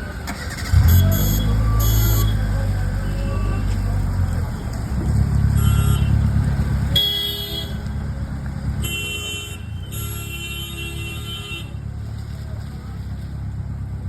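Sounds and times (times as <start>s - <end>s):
car engine rumbling: 0.0s - 14.0s
vehicle horns honking: 0.4s - 3.9s, 5.5s - 8.0s, 8.8s - 11.9s.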